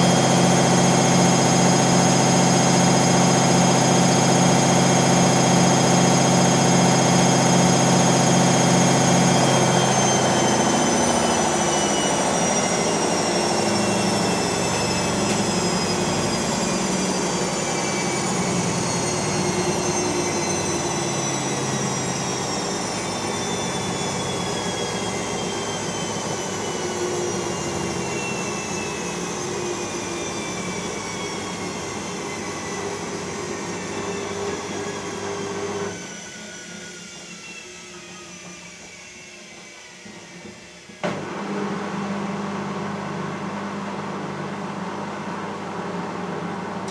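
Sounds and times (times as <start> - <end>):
falling whine: 0.0 - 35.4
washing machine spinning: 0.0 - 46.9.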